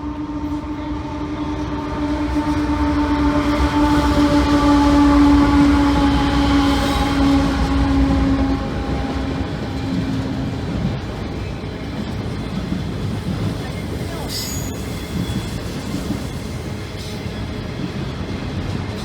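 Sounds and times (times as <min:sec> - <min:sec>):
train horn blast: 0:00.0 - 0:10.4, 0:14.3 - 0:15.6
diesel locomotives rumbling past: 0:00.0 - 0:19.0.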